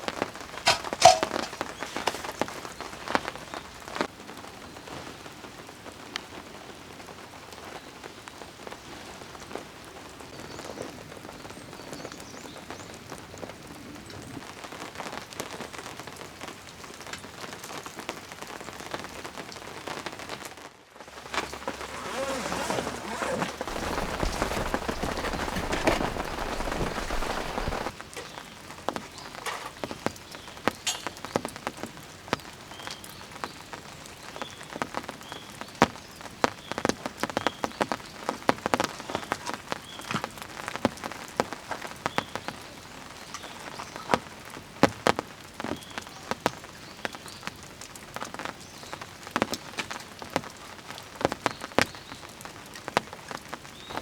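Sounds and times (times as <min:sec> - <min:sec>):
raindrops tapping: 0:00.0 - 0:04.2, 0:21.0 - 0:54.0
rain falling: 0:00.0 - 0:54.0.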